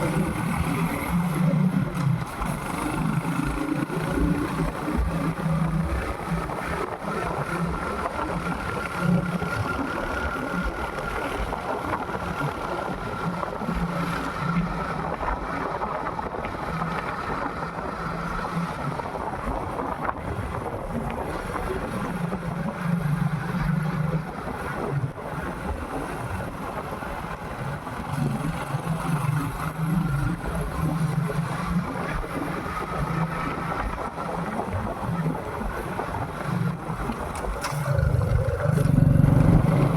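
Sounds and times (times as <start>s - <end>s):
wind rushing over microphone: 0.0s - 39.9s
motorcycle engine running: 28.0s - 39.9s.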